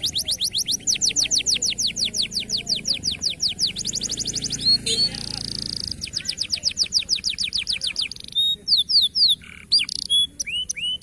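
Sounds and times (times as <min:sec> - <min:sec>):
canary singing trills: 0:00.0 - 0:11.0.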